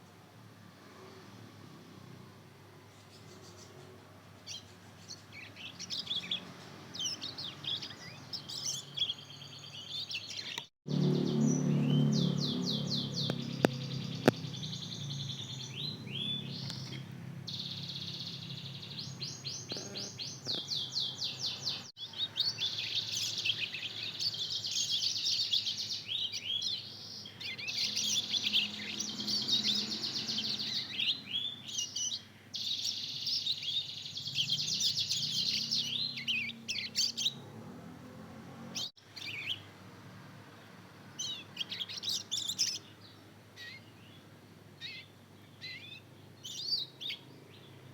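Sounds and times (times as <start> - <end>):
canary twittering and trilling: 2.8 - 37.6, 38.7 - 39.6, 41.1 - 44.2, 44.8 - 47.9.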